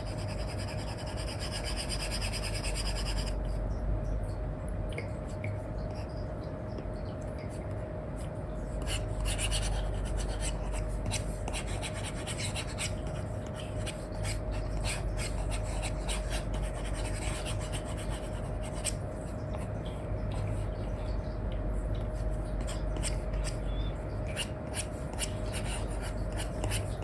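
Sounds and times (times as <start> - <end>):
stylus scratching on screen: 0.0 - 3.4, 22.2 - 27.0.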